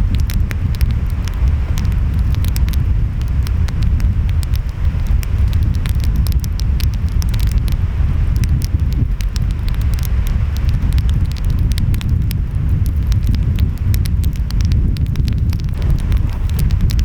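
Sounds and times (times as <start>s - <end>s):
wind: 0.0s - 17.0s
wood fire crackling: 0.0s - 17.0s.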